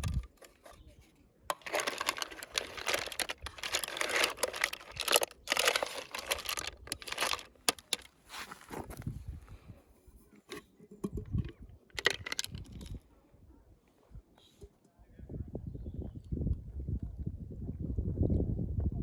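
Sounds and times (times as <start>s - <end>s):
crackling rustling handling noise: 0.0s - 9.2s, 11.4s - 12.9s.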